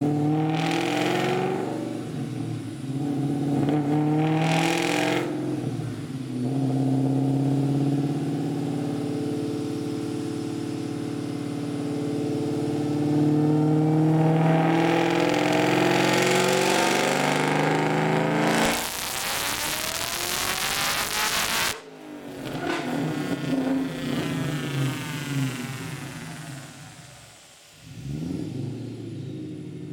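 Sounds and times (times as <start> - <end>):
car engine revving: 0.0 - 29.9.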